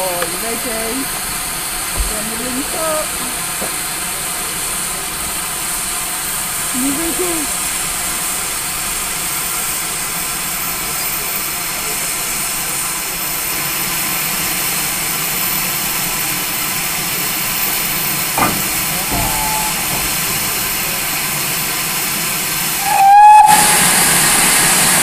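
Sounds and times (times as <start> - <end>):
steam locomotive hissing: 0.0 - 25.0
locomotive whistle blast: 18.4 - 21.3, 22.7 - 25.0.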